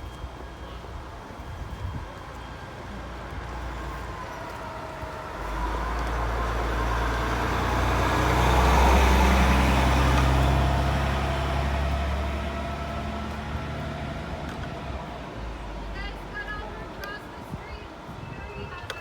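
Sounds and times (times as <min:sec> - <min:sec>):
large vehicle engine passing: 0:03.5 - 0:16.1.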